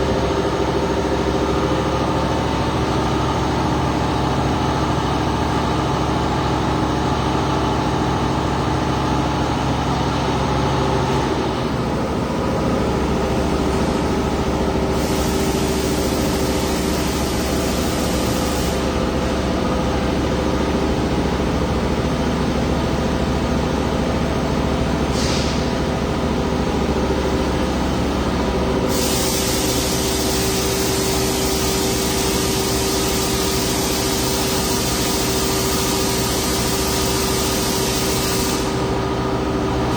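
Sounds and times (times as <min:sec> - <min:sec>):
welding equipment hum: 0:11.1 - 0:22.1, 0:25.9 - 0:39.9
welding torch hissing: 0:14.9 - 0:19.2, 0:28.9 - 0:39.0.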